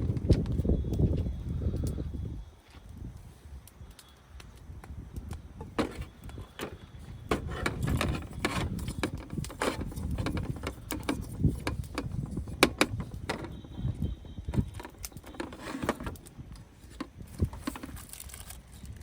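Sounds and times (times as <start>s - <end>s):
wind buffeting microphone: 0.0s - 19.0s
irregular clicks and knocks: 5.2s - 18.3s.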